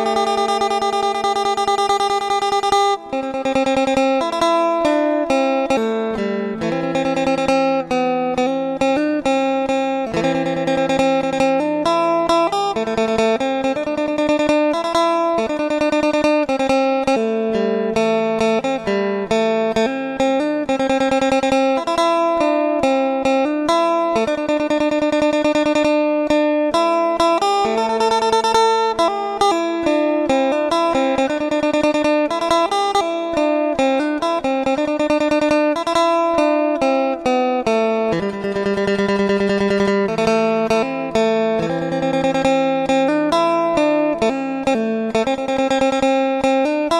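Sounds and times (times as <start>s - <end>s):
acoustic guitar picking: 0.0s - 46.9s.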